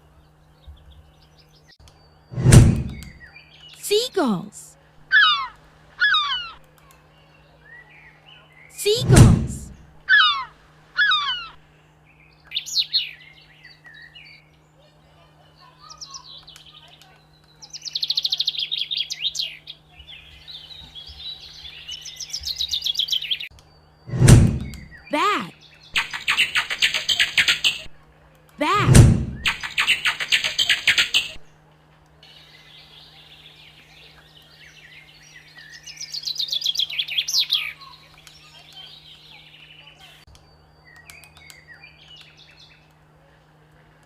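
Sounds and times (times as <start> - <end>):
birds trilling and chattering: 0.0 - 44.0
faint low hum: 0.0 - 44.0
bat chirps and squeaks: 5.1 - 6.6, 10.1 - 11.6, 25.8 - 27.9, 29.4 - 31.4.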